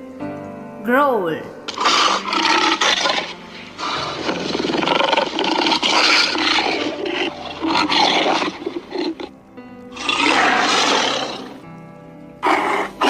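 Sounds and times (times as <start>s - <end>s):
big cat growling: 1.7s - 9.3s, 9.9s - 11.6s, 12.4s - 13.0s.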